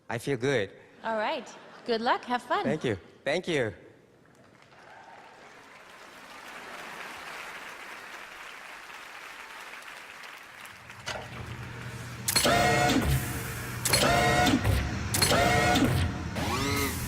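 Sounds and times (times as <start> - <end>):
audience applauding: 4.2 - 12.1.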